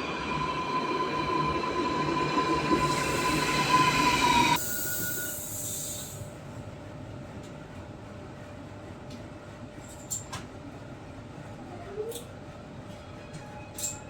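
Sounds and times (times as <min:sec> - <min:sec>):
electric train whine: 0:00.0 - 0:06.3
hiss: 0:02.8 - 0:06.3.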